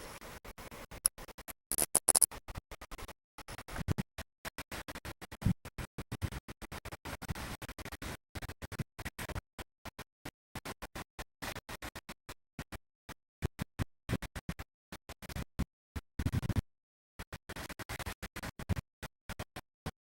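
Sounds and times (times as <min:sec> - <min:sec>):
chopped stuttering noise bursts: 0:01.0 - 0:02.4.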